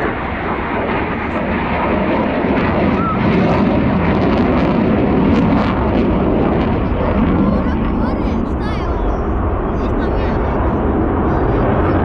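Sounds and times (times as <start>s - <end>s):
crowd voices: 0.0s - 3.8s, 6.3s - 12.0s
airplane engine flying over: 0.0s - 12.0s.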